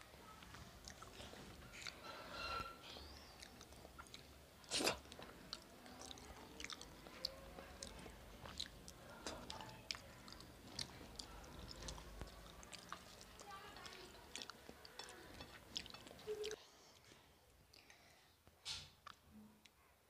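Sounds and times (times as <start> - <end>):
wet chewing and smacks: 2.9 - 16.6.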